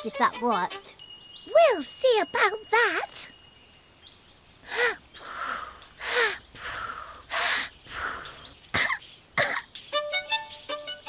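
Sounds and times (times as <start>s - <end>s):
hissing breath: 4.6s - 10.6s.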